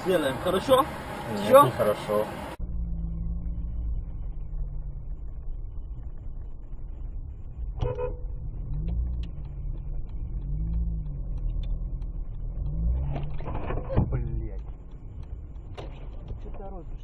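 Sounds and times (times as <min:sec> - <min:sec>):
car engine: 0:00.0 - 0:17.0
road rumble: 0:00.0 - 0:17.0
short car horn toot: 0:07.8 - 0:08.3.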